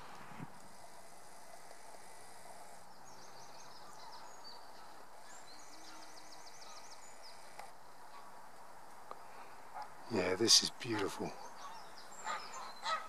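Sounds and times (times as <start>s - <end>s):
outdoor background hiss: 0.0s - 13.0s
small songbird singing: 2.9s - 7.6s, 10.2s - 13.0s.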